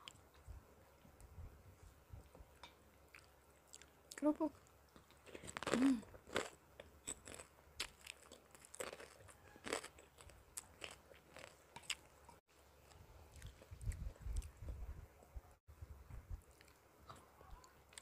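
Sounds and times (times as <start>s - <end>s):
person chewing crisp crackers: 2.6s - 12.2s, 12.8s - 14.6s, 16.4s - 18.0s.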